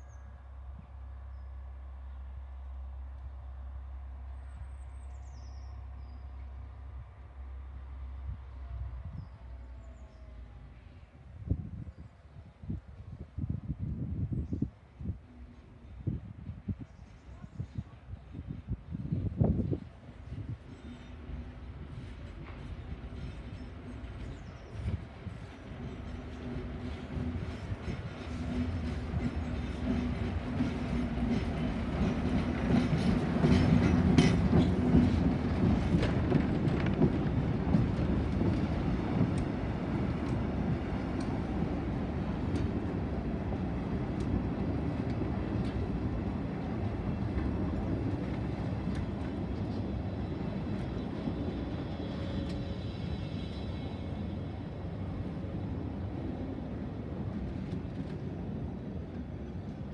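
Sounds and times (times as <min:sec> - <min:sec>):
diesel locomotive engine running: 0:20.4 - 0:57.8
wheels clicking over rail joints: 0:25.8 - 0:51.3.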